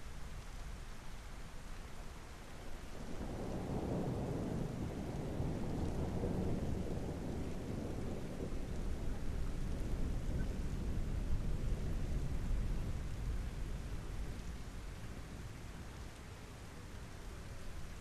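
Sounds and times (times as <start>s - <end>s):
steady rain: 0.0s - 18.0s
thunder rumbling: 3.0s - 15.5s.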